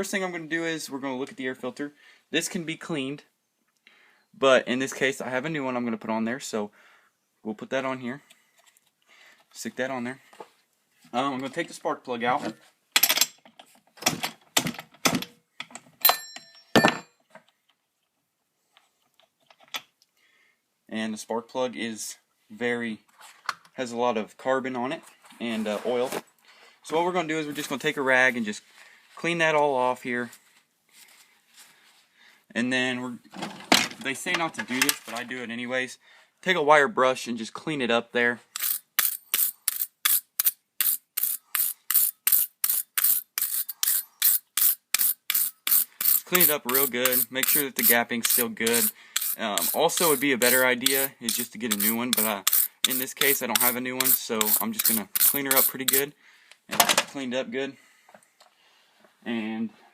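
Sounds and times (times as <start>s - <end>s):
wire brush scrubbing spark plug: 38.6s - 56.1s.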